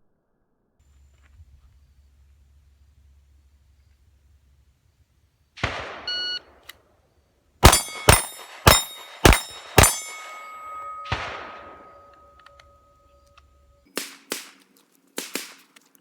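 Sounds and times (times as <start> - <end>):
pistol shots: 5.6 - 6.7, 7.6 - 12.8, 13.9 - 15.8
shot timer beep: 6.0 - 6.5
struck steel plate ringing: 7.6 - 13.8.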